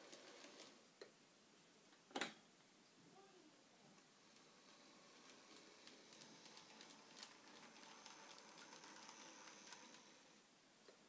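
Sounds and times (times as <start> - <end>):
wheels clicking over track: 0.0 - 0.8, 4.2 - 10.4
model train motor whine: 4.2 - 10.4.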